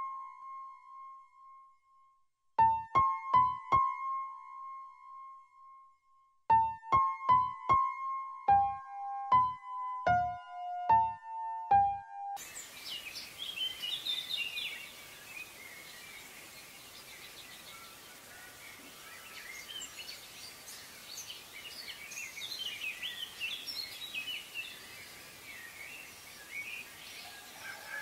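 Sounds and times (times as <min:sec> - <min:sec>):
birds chirping: 0:12.4 - 0:28.0
outdoor background noise: 0:12.4 - 0:28.0.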